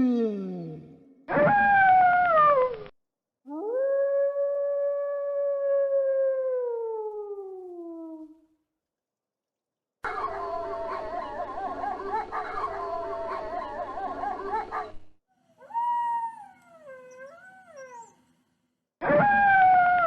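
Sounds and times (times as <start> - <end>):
single wolf howling: 3.5 - 8.4, 15.6 - 18.1, 19.1 - 20.0
wolves howling in chorus: 10.1 - 15.0.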